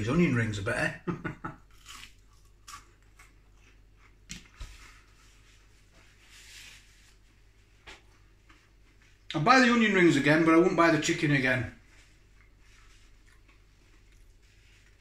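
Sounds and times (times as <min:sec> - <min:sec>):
chewing crispy onion ring: 0:01.6 - 0:04.2, 0:12.3 - 0:15.0
soft rustle: 0:03.6 - 0:09.3, 0:11.8 - 0:15.0.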